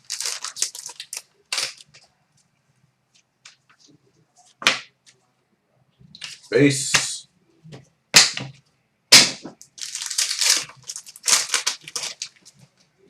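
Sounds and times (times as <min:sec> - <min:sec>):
foil wrapper crinkling: 0:00.0 - 0:02.0, 0:09.6 - 0:12.8
foil wrapper ripping: 0:00.0 - 0:02.0, 0:09.8 - 0:12.6.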